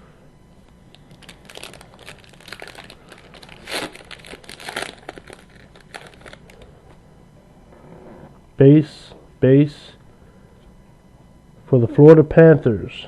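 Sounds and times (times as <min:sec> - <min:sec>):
foil wrapper crinkling and tearing: 0:00.9 - 0:06.7.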